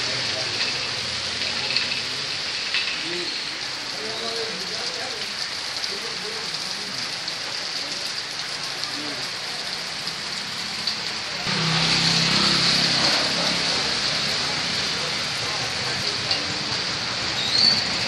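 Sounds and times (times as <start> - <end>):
heavy rain splashing in water: 0.0 - 18.0.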